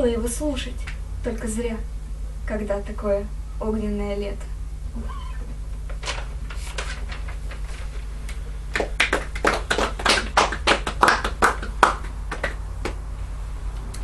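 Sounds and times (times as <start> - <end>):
audience applauding: 8.7 - 13.0.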